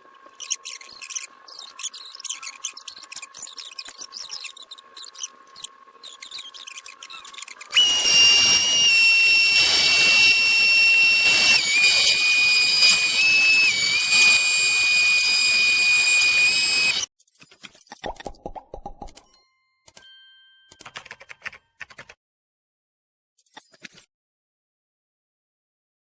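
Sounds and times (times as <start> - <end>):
power tool whining: 7.6 - 17.1.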